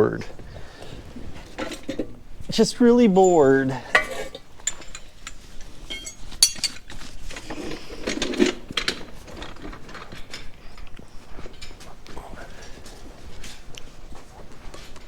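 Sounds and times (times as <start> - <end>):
ringing metal clink: 3.2 - 5.1, 5.9 - 6.9
metal tools clicking and clinking: 3.2 - 11.8.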